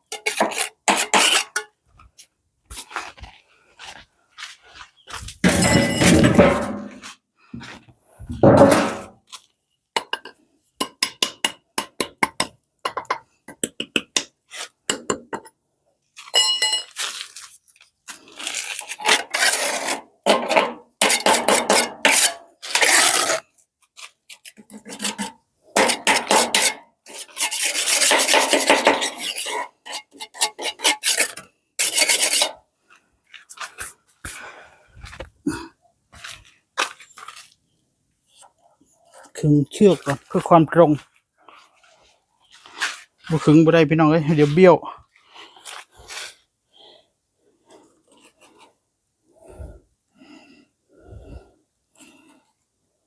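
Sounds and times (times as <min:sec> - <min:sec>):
hand tool scraping hard surface: 0:00.0 - 0:01.7, 0:05.4 - 0:09.1, 0:18.3 - 0:32.6.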